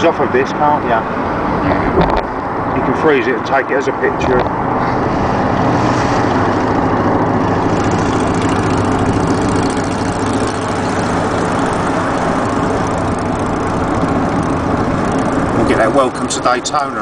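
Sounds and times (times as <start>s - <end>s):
wind and road noise: 0.0s - 17.0s
motorcycle engine running: 4.2s - 17.0s.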